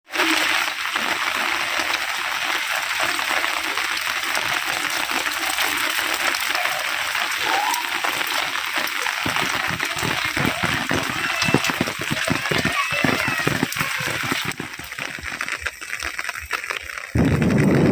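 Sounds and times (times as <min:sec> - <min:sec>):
heavy rain: 0:00.1 - 0:17.9
gusting wind: 0:17.1 - 0:17.9.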